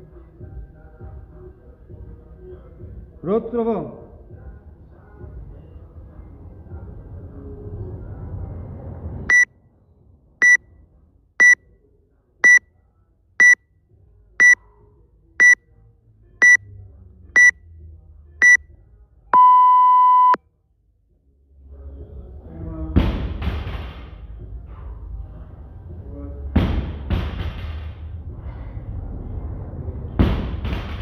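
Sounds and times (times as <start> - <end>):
short high beeps: 19.4 - 20.4.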